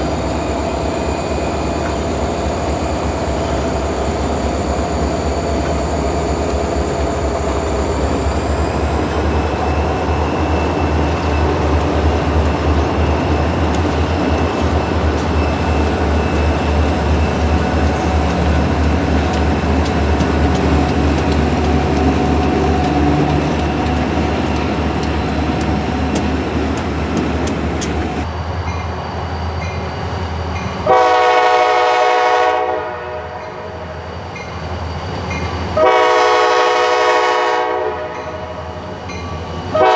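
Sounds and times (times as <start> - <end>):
train wheel noise: 0.0 - 31.1
train engine rumble: 0.0 - 39.9
wheels clicking over rails: 8.5 - 28.3
locomotive horn blast: 30.9 - 33.4, 35.8 - 38.4.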